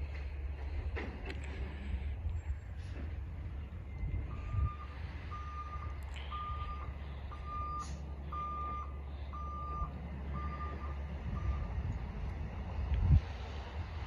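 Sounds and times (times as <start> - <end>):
truck engine low rumble: 0.0 - 14.0
reversing alarm beeping: 3.8 - 11.8.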